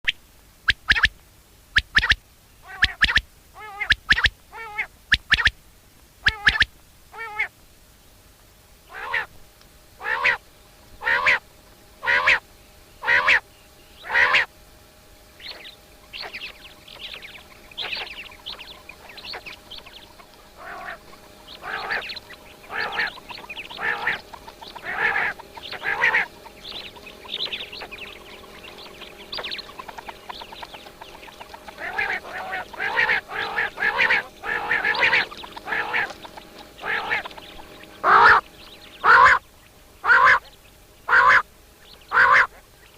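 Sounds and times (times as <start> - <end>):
faint overlapping bird calls: 0.0 - 42.9
loud bird calls: 1.8 - 5.5, 6.2 - 7.5, 8.8 - 9.3, 10.0 - 10.4, 11.0 - 42.9.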